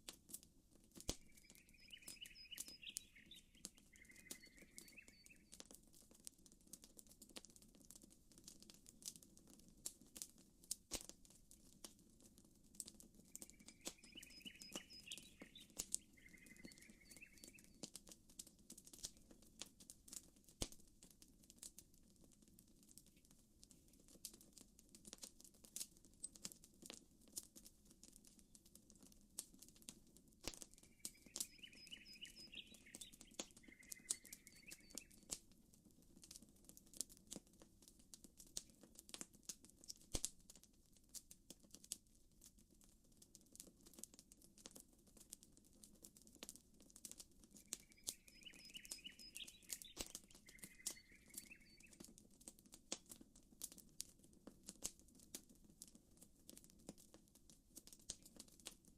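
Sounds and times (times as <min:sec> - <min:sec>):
campfire crackling and popping: 0:00.0 - 0:58.9
bird chirping: 0:01.1 - 0:05.6, 0:13.3 - 0:17.8, 0:30.8 - 0:35.2, 0:47.5 - 0:52.0.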